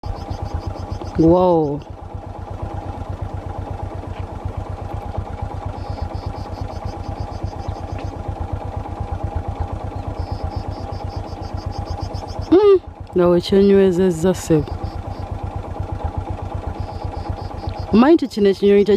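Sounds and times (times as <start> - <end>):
engine idling: 0.0 - 18.9.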